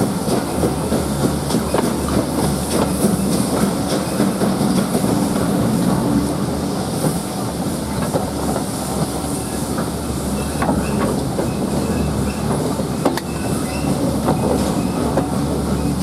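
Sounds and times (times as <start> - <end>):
train wheels rumbling on rails: 0.0 - 16.0
wheels clicking over rail joints: 7.0 - 16.0.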